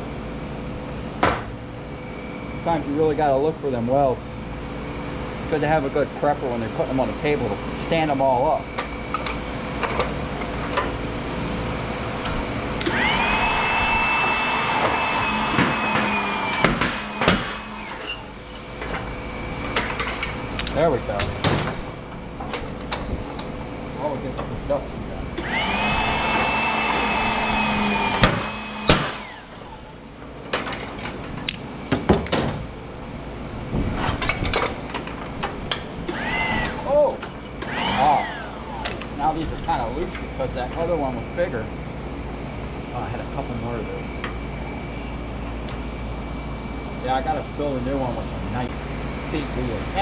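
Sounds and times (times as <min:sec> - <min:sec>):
steady mechanical hum: 0:00.0 - 0:50.0
power tool motor whine: 0:08.8 - 0:20.6, 0:25.3 - 0:30.0, 0:36.0 - 0:39.0
metal knocks and clanks: 0:15.6 - 0:23.5.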